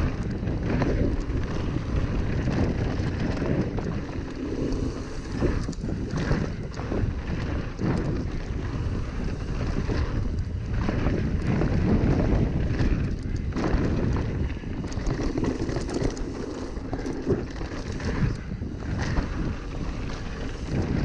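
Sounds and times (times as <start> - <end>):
bike rattling clicks and knocks: 0.0 - 21.0
tyres rumbling on dirt: 0.0 - 21.0
wind buffeting microphone: 0.0 - 21.0.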